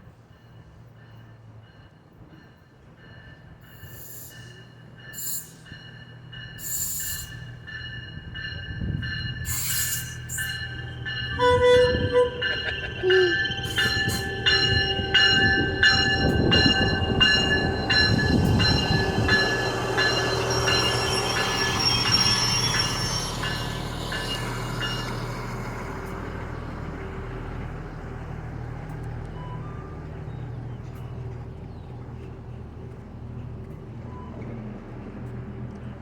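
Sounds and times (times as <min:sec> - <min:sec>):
high-pitched wheel squeal: 0:09.5 - 0:15.5, 0:20.5 - 0:23.7.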